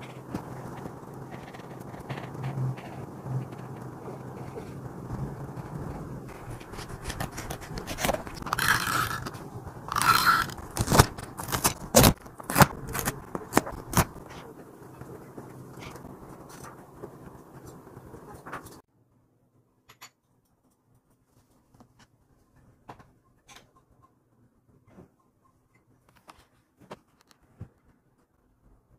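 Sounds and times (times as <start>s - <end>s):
paper handling: 0.0s - 18.8s
paper scraping rustles: 0.0s - 18.8s
low steady hum: 0.0s - 19.6s.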